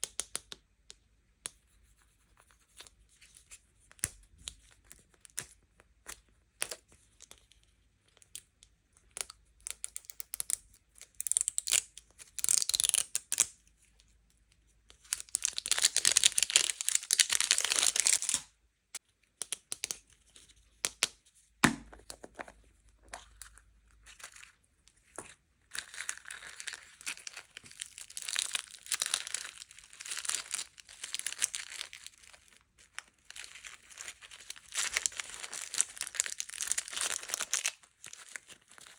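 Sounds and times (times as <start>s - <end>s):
packaging crinkling: 25.7s - 38.9s
packaging tearing: 25.8s - 32.4s.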